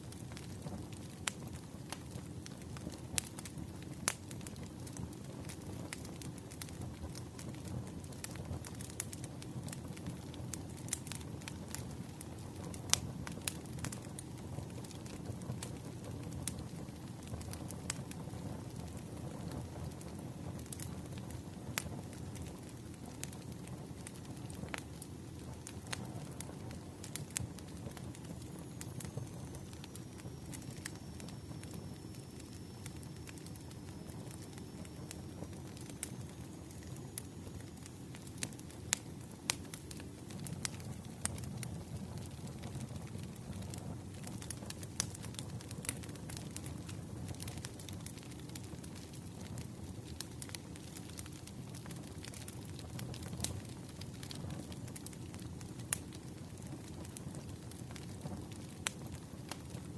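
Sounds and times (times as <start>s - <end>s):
firewood crackling and popping: 0.0s - 59.9s.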